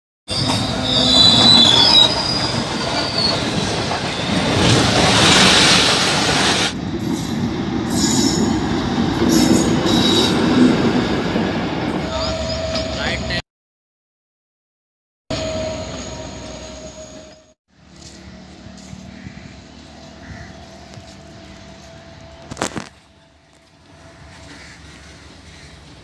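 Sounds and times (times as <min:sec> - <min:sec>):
high wheel squeal: 0:00.3 - 0:05.0, 0:12.0 - 0:13.2
passenger train rumbling past: 0:00.3 - 0:13.4, 0:15.3 - 0:26.0.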